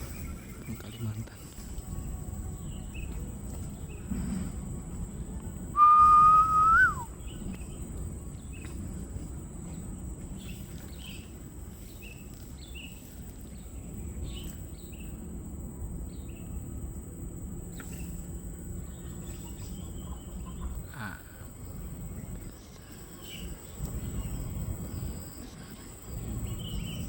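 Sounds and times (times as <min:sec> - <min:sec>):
high-pitched insect hum: 0:00.0 - 0:27.0
loud whistled note: 0:05.7 - 0:07.3.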